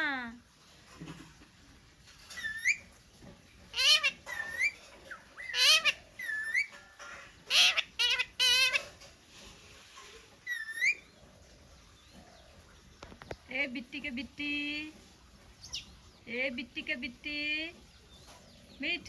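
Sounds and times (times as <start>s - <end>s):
parrot squawking: 2.3s - 2.9s, 3.7s - 9.0s, 10.4s - 11.1s.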